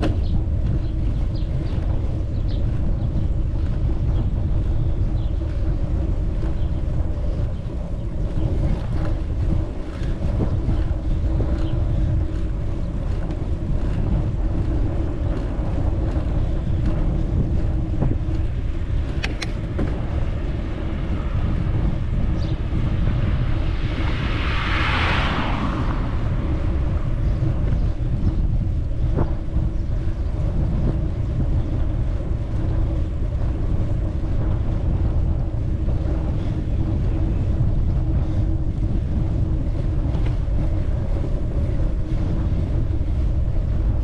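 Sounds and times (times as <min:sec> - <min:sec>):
wind buffeting microphone: 0:00.0 - 0:44.0
sharp clicks: 0:19.2 - 0:19.6.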